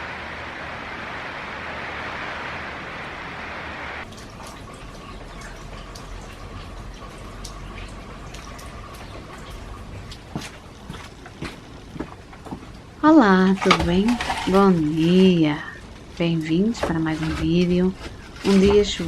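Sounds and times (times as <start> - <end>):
rain hissing: 0.0 - 19.0
rainwater dripping and tapping: 4.0 - 19.0.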